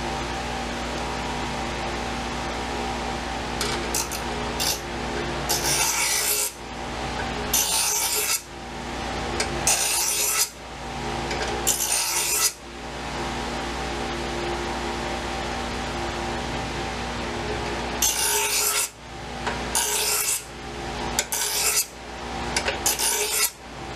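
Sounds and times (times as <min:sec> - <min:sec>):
steady hum: 0:00.0 - 0:23.9
knife scraping on abrasive: 0:03.6 - 0:04.8, 0:05.5 - 0:06.6, 0:07.5 - 0:08.4, 0:09.6 - 0:10.6, 0:19.7 - 0:20.4, 0:21.2 - 0:21.9, 0:22.6 - 0:23.6.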